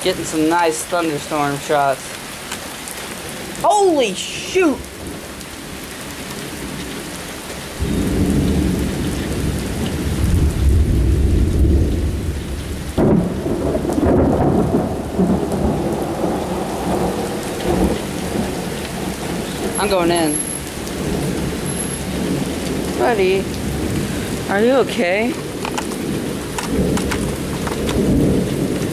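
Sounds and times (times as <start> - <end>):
heavy rain: 0.0 - 28.9
thunder crack: 7.8 - 19.8, 25.4 - 28.9
thunder rumble: 7.8 - 28.9.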